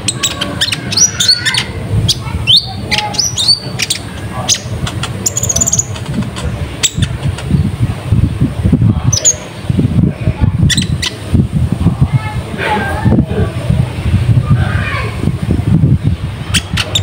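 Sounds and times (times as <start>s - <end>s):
sunbird chirping: 0.0s - 6.0s
high bird trill: 0.0s - 6.1s, 6.8s - 7.6s, 10.6s - 11.2s, 16.4s - 17.0s
low rumbling noise: 0.0s - 17.0s.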